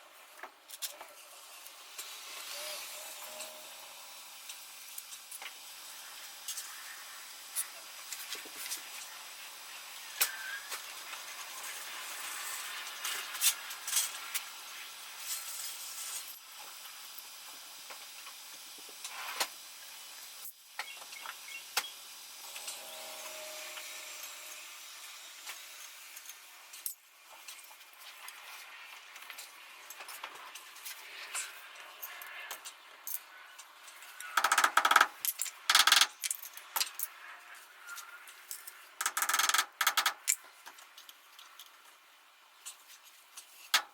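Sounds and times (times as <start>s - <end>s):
metal tools clinking and rattling: 35.2s - 37.2s.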